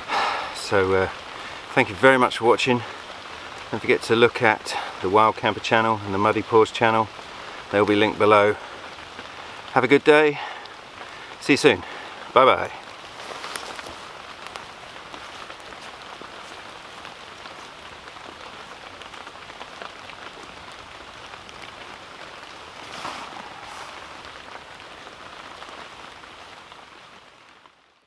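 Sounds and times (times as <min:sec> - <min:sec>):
steady rain: 0:00.0 - 0:28.0
brief rustle: 0:22.7 - 0:24.6.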